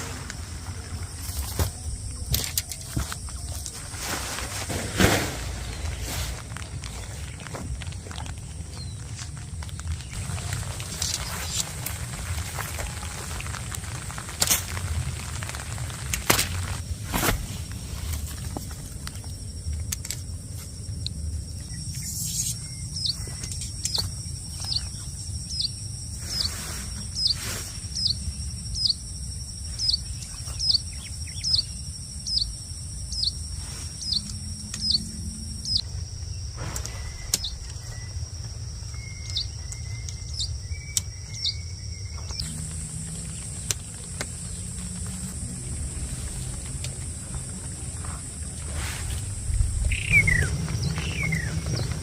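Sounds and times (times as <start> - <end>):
high insect drone: 0.0 - 52.0
bird chirping: 29.8 - 33.4, 34.0 - 35.9, 36.9 - 42.6, 49.6 - 52.0
low rumble: 42.3 - 52.0.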